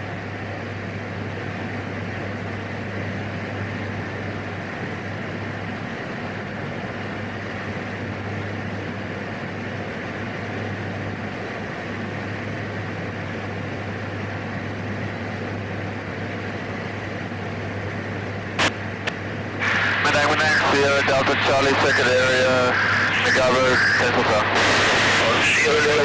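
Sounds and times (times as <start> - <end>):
sharp click: 18.6 - 19.2
turboprop engine drone: 18.6 - 26.0.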